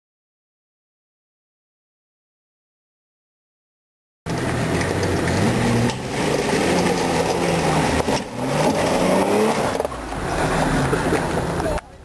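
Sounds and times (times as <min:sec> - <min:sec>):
engine revving: 0:04.3 - 0:12.0.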